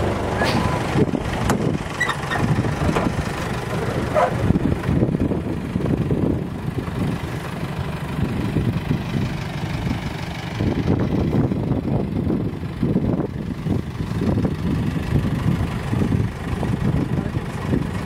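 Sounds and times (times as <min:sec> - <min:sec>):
jeep engine idling: 0:00.0 - 0:18.0.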